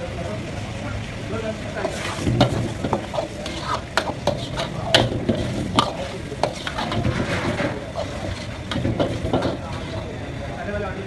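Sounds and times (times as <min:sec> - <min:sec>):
food sizzling in a pan: 0:01.7 - 0:10.2
utensil scraping a pan: 0:01.8 - 0:10.2.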